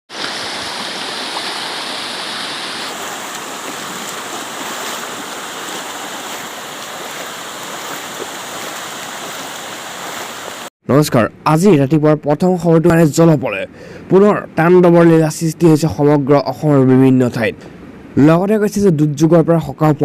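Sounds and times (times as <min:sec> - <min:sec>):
flowing water rushing: 0:00.1 - 0:10.7.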